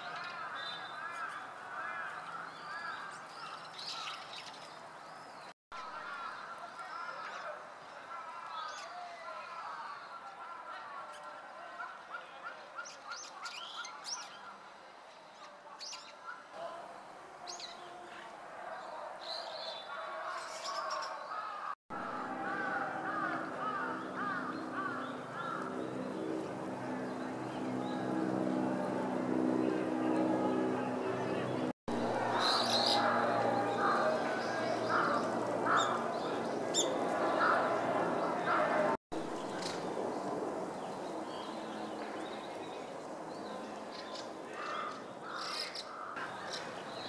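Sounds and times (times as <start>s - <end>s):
birds chirping: 19.2s - 47.0s
starlings harsh grating calls: 19.6s - 28.1s, 32.3s - 38.8s, 43.9s - 47.0s
steady engine hum: 21.9s - 42.2s.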